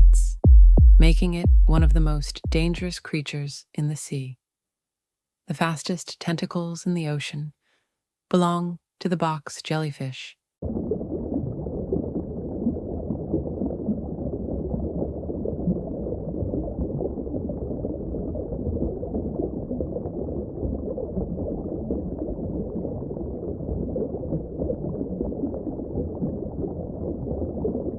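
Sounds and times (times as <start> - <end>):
underwater bubbling rush: 10.6 - 27.9.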